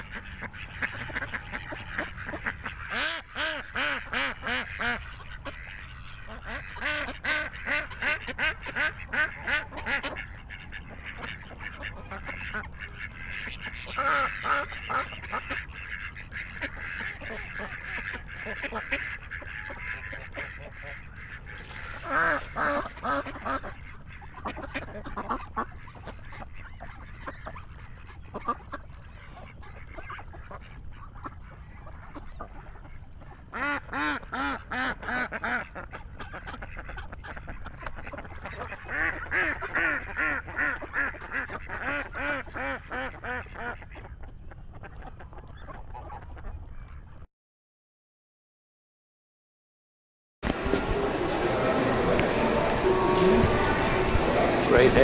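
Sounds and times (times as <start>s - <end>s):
ducks quacking: 0.0s - 47.3s, 50.4s - 55.0s.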